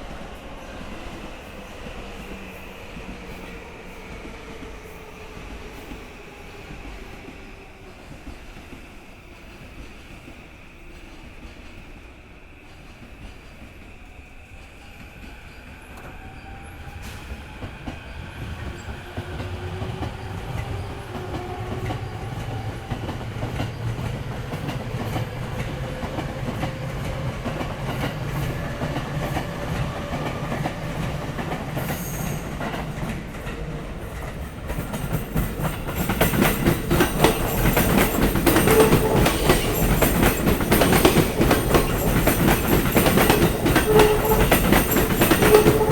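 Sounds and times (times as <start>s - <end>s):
train approaching: 0.0s - 45.9s
wheels clacking over rail joints: 34.2s - 45.9s.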